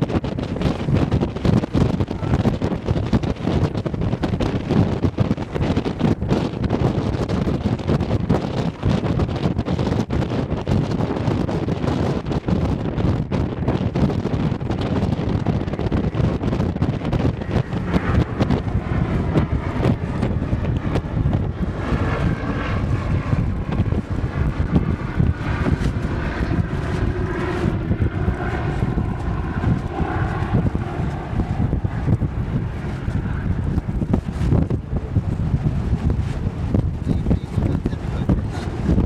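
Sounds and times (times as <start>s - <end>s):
aircraft engine droning: 0.0s - 39.0s
wind buffeting microphone: 0.0s - 39.0s.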